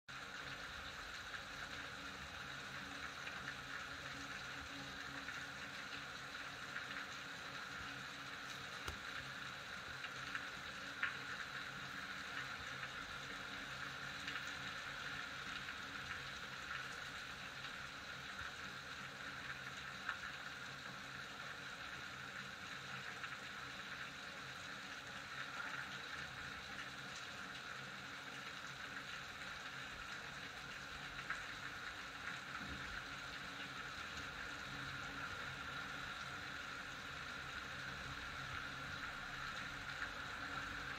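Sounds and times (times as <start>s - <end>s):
steady rain hiss: 0.1s - 40.9s
raindrops ticking: 7.8s - 13.5s.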